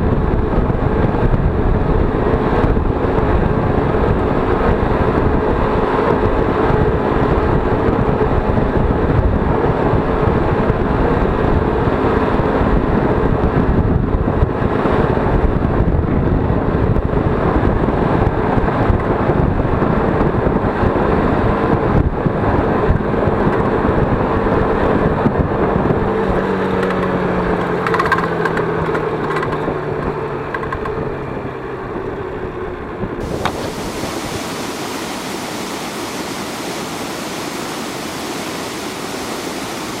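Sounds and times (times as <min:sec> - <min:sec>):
wind noise on microphone: 0:00.0 - 0:40.0
rushing water: 0:33.2 - 0:40.0.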